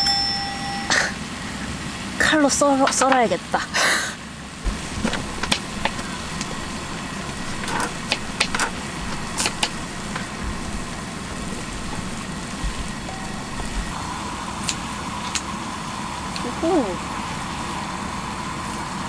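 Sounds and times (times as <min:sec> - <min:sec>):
gas burner running: 0:00.0 - 0:19.0
sharp clicks and knocks: 0:02.8 - 0:03.3, 0:04.7 - 0:06.5, 0:07.5 - 0:10.3.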